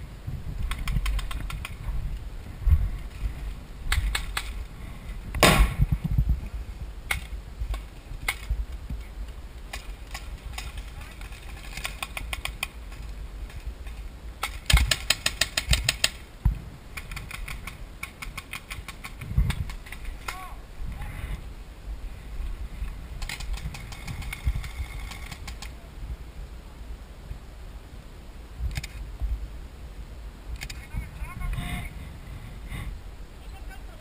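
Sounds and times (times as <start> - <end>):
wind rumble on microphone: 0.0 - 34.0
paintball markers firing: 14.4 - 16.2.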